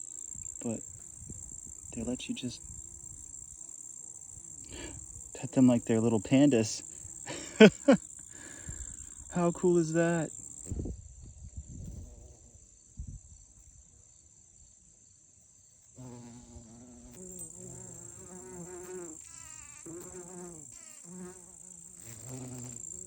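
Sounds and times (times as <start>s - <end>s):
high-pitched insect trill: 0.0s - 23.0s
bumblebees buzzing: 16.0s - 23.0s.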